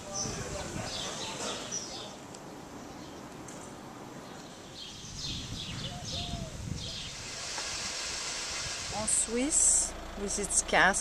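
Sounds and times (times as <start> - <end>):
small birds chirping: 0.0 - 3.4, 4.2 - 7.2
low outdoor hum: 0.2 - 11.0.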